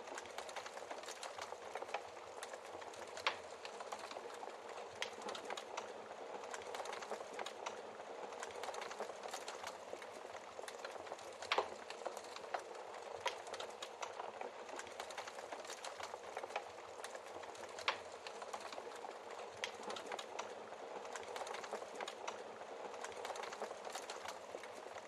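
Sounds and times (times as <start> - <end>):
wood fire crackling: 0.0 - 25.0
burning logs popping: 0.1 - 25.0.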